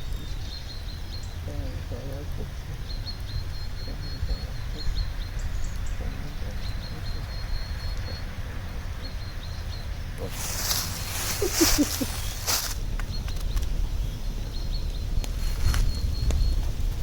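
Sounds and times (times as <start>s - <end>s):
steady low rumble: 0.0s - 17.0s
loud rustling: 10.2s - 12.8s.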